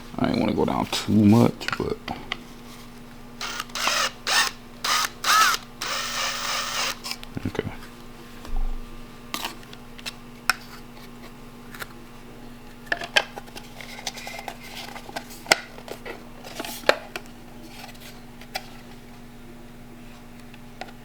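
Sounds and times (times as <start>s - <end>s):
low steady hum: 0.0s - 9.7s.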